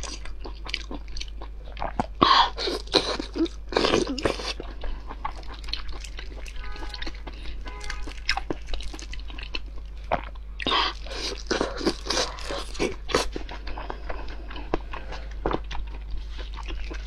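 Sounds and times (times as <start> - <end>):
chewing with wet clicks: 0.0 - 17.0
steady low hum: 0.0 - 17.0.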